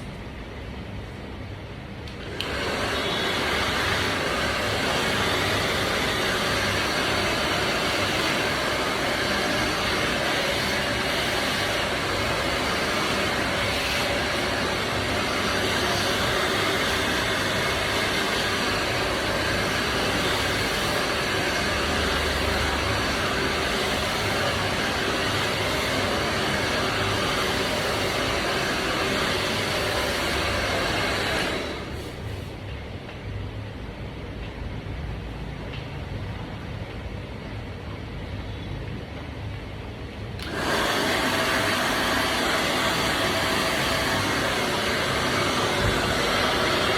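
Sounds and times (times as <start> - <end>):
hair dryer blowing air: 2.0 - 32.6, 40.4 - 46.9.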